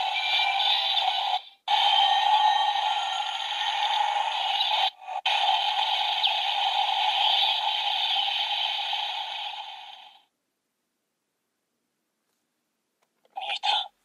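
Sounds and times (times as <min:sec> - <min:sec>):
electronic rushing hiss: 0:00.0 - 0:10.2.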